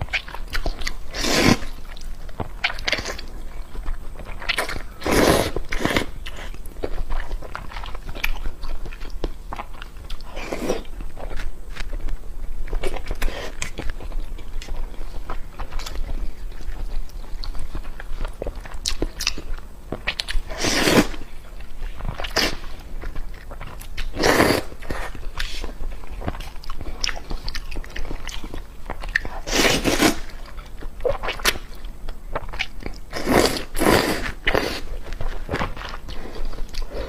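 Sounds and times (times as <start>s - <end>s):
chewing with wet mouth clicks: 0.0s - 20.5s, 21.3s - 29.5s.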